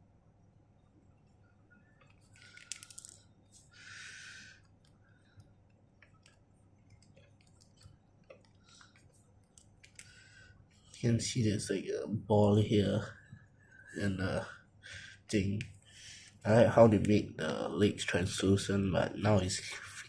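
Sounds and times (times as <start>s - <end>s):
small plastic clicks: 2.0s - 3.2s
plastic toy rustling: 2.2s - 3.7s.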